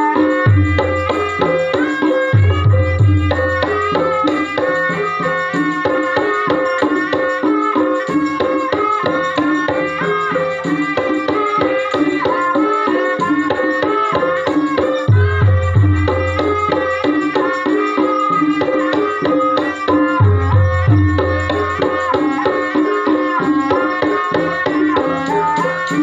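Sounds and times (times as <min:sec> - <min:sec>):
hand drums beating: 0:00.0 - 0:26.0
melody of pitched struck notes: 0:00.1 - 0:11.2, 0:14.4 - 0:23.2.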